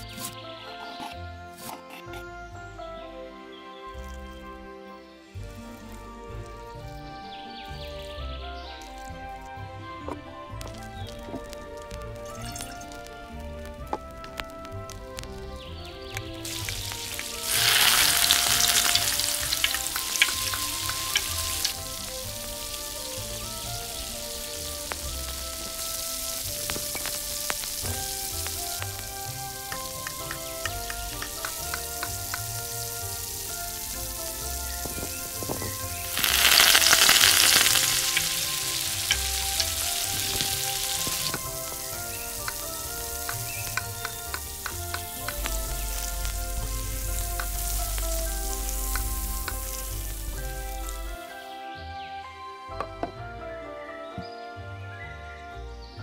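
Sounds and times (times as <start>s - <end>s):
oil sizzling in a pan: 10.6s - 51.2s.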